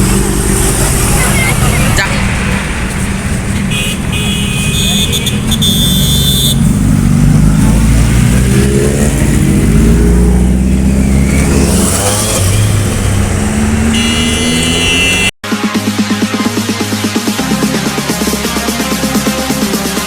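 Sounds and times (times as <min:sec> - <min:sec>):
motorcycle engines revving: 0:00.0 - 0:15.4
high horn-like tone: 0:03.7 - 0:06.8, 0:13.8 - 0:15.6.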